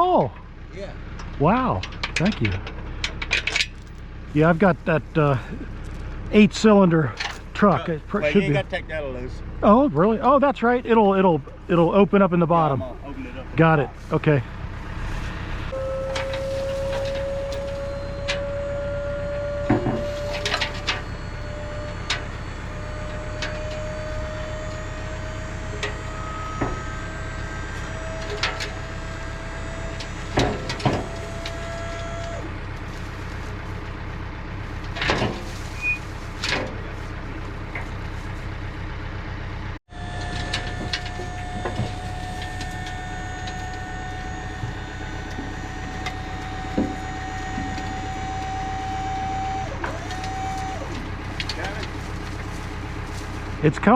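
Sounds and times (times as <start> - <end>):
vehicle engine running: 0.0 - 53.9
faint rising whine: 4.4 - 33.2, 40.0 - 53.5.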